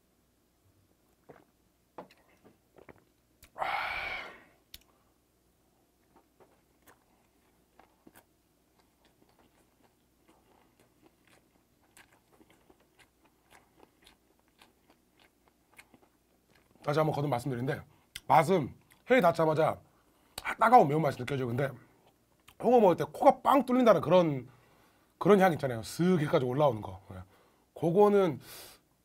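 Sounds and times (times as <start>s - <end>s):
short breathy sound: 3.5s - 5.1s
close chewing with wet mouth clicks: 6.0s - 16.9s.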